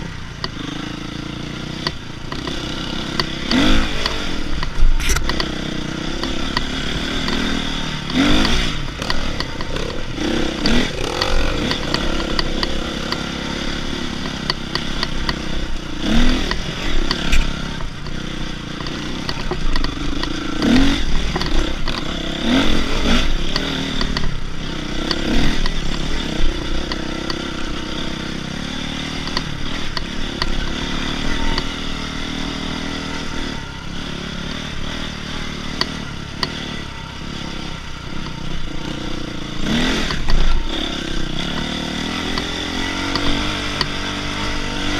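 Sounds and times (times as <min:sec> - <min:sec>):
dirt bike engine revving: 0:00.0 - 0:44.9
bike rattles and knocks: 0:01.8 - 0:22.6.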